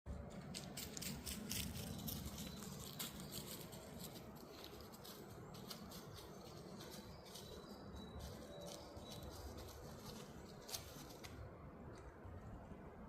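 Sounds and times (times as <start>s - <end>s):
songbirds twittering: 1.1s - 11.4s.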